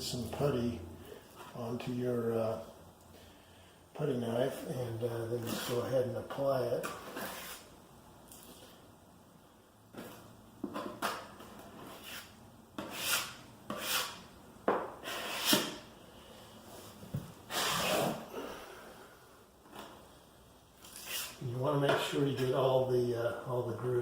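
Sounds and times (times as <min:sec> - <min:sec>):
putty knife scraping plaster: 0:05.4 - 0:05.9, 0:06.8 - 0:07.7, 0:10.8 - 0:14.3, 0:15.0 - 0:15.9, 0:20.8 - 0:22.6.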